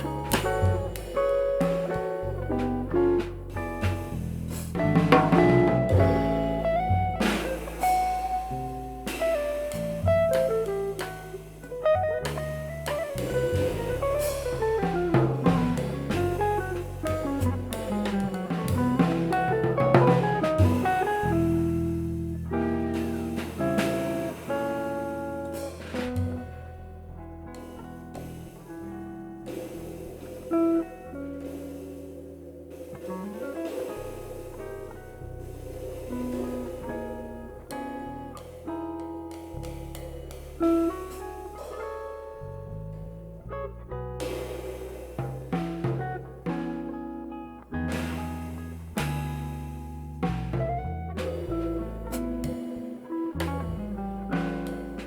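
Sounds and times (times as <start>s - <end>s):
electric guitar melody: 0.0s - 32.2s, 45.8s - 55.0s
drum kit with cymbals: 0.0s - 55.0s
electric bass: 0.0s - 55.0s.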